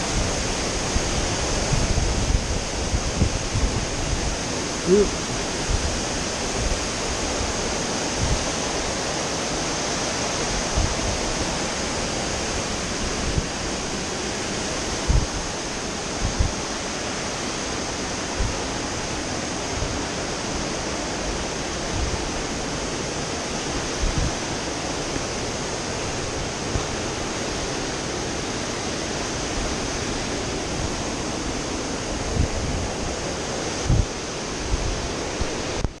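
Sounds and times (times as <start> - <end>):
waterfall roaring: 0.0 - 36.0.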